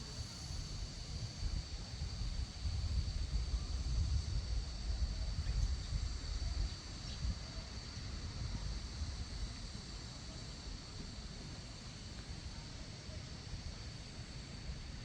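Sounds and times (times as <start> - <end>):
wind rumbling on microphone: 0.0 - 9.6.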